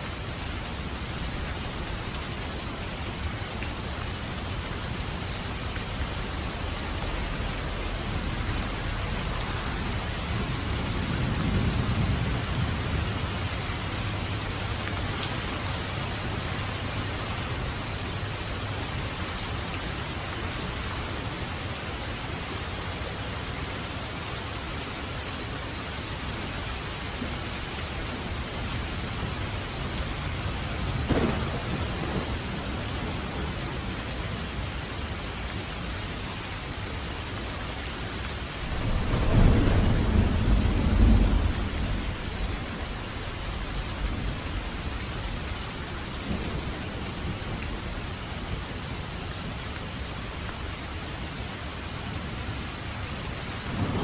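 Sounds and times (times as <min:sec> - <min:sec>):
heavy rain on a roof: 0:00.0 - 0:54.0
low roll of thunder: 0:07.1 - 0:14.3, 0:30.8 - 0:34.0, 0:38.6 - 0:45.6, 0:53.6 - 0:54.0
sharp thunderclap: 0:31.0 - 0:32.8, 0:38.7 - 0:42.6.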